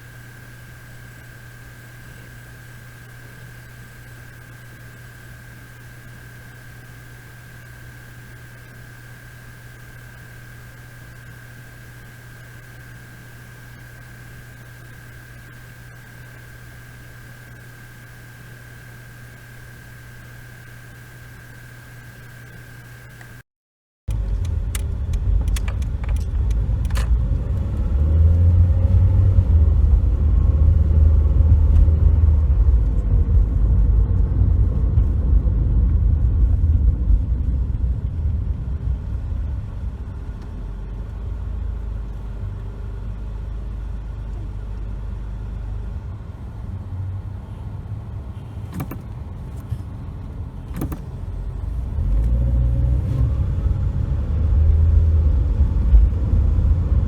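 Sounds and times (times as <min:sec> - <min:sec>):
sharp clicks: 0:22.2 - 0:23.4, 0:24.1 - 0:27.2, 0:48.7 - 0:49.7
car road and engine rumble: 0:24.1 - 0:57.0.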